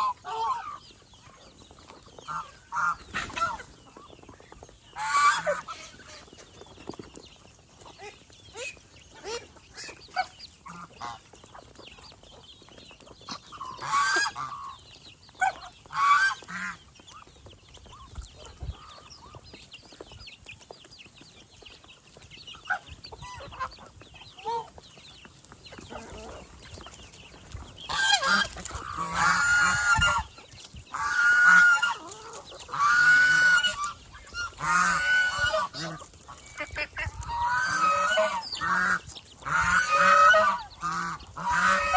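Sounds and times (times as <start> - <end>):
geese honking: 0.0 - 1.0, 2.2 - 4.0, 4.9 - 6.4, 8.6 - 11.3, 13.3 - 14.8, 15.4 - 16.8, 27.9 - 41.9
geese soft calls and chatter: 0.0 - 41.9.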